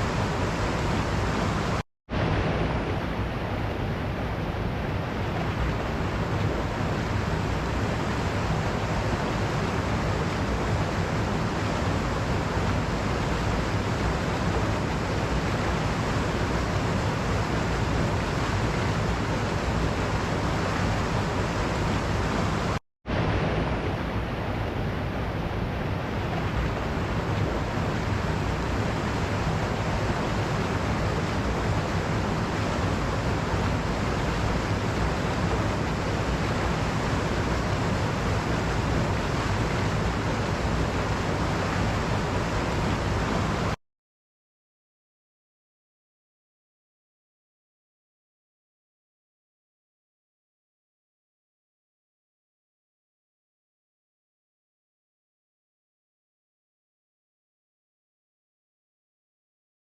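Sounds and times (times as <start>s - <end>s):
waterfall rushing: 0.0s - 43.8s.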